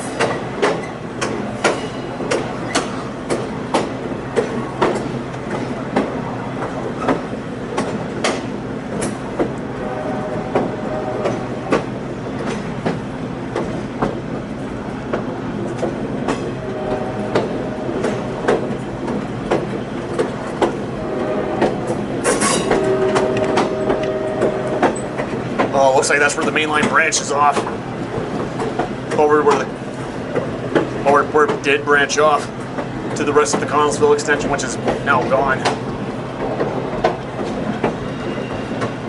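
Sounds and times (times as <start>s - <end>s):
wheels clicking over rail joints: 0.0s - 9.6s, 10.5s - 39.0s
train rumbling over rails: 0.0s - 39.0s.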